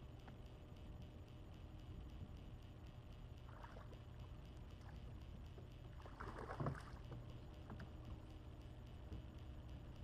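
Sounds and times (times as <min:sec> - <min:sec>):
water lapping against boat hull: 0:05.9 - 0:07.9.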